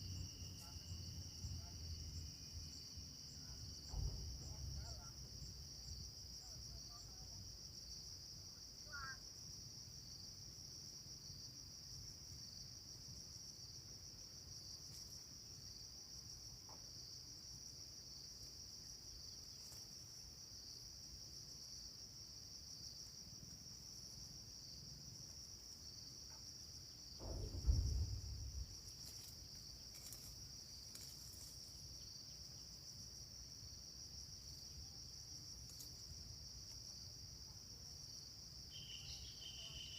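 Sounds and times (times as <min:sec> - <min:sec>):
insects chirping chorus: 0:00.0 - 0:39.9
dull low thump: 0:03.7 - 0:05.0, 0:27.1 - 0:31.4.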